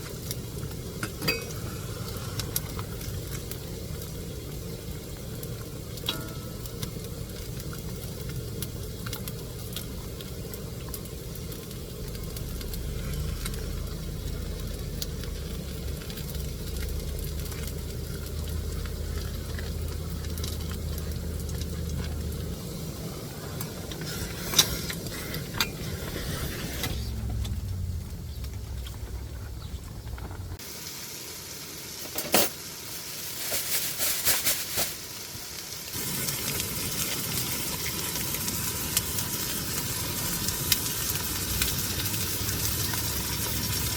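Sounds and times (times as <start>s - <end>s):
food sizzling: 0.0s - 43.9s
low rumble: 6.0s - 30.6s.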